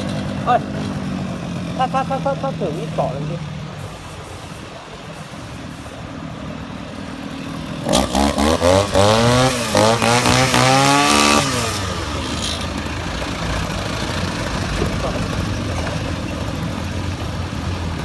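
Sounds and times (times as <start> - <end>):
brush cutter engine revving: 0.0 - 4.2, 6.8 - 18.0.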